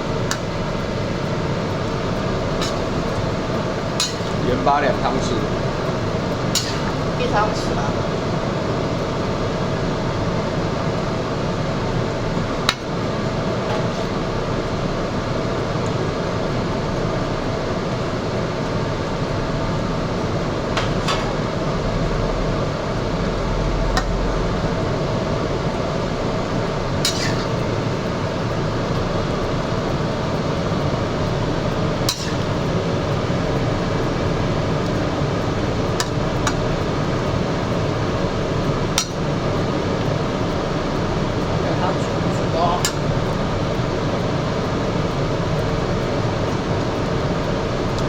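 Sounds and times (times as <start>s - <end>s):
fan-like kitchen noise: 0.0s - 48.0s
pot cooking on stove: 0.0s - 48.0s
metal utensil clinking on pot: 4.0s - 4.4s, 27.1s - 27.6s, 32.1s - 32.5s.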